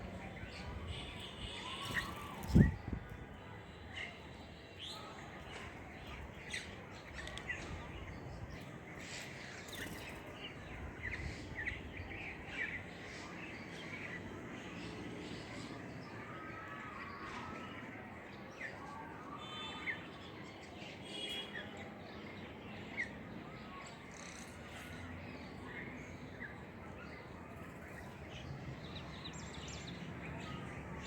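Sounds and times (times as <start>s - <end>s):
small birds chirping: 4.8s - 15.8s.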